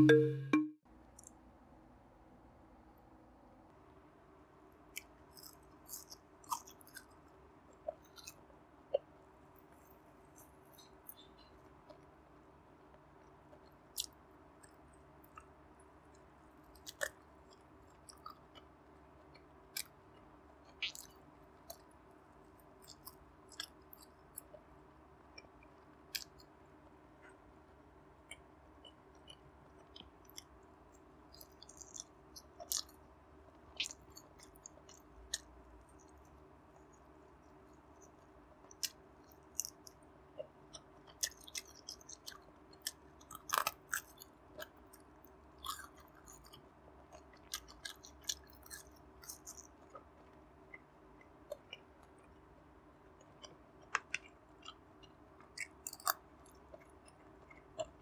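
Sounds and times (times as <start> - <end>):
close-miked chewing: 4.9 - 12.1, 16.1 - 21.9, 22.6 - 24.7, 25.4 - 26.6, 28.3 - 33.1, 33.7 - 52.5, 53.1 - 58.0
wet mouth smacks and clicks: 31.3 - 33.0, 33.8 - 35.5, 53.4 - 58.0.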